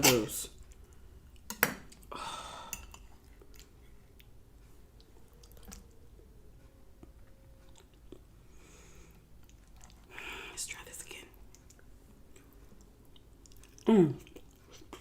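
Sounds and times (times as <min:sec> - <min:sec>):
person chewing food: 0:02.8 - 0:06.1, 0:07.0 - 0:10.3, 0:11.4 - 0:15.0.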